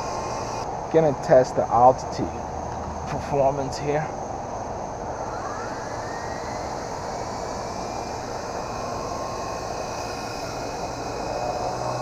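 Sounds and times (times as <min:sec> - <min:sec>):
toy helicopter rotor whirring: 0:00.0 - 0:00.7, 0:04.9 - 0:12.0.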